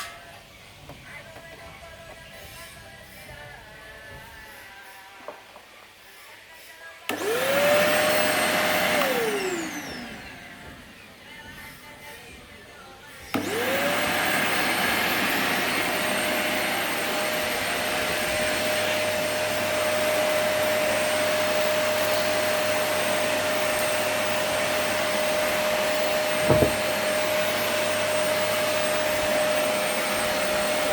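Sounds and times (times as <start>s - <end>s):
vacuum cleaner motor whine: 7.1s - 12.4s, 13.0s - 30.9s.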